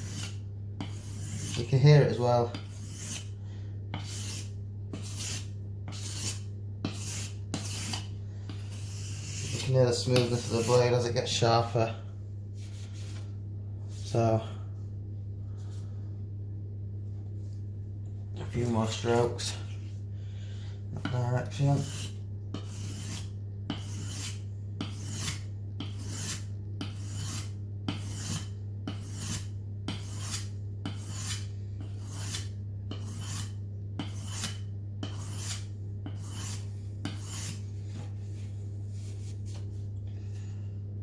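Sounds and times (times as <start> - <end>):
knife on whetstone rasping: 0.0 - 3.3, 3.9 - 11.0, 21.7 - 37.6.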